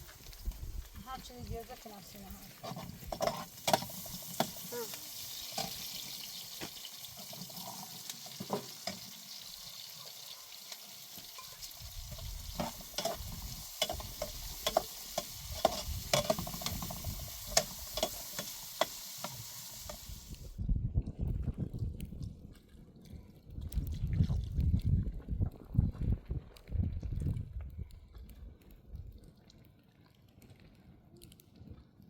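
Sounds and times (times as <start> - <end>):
food sizzling in a pan: 0.0 - 20.6
stirring scrapes against pan: 2.4 - 6.2, 10.7 - 20.2.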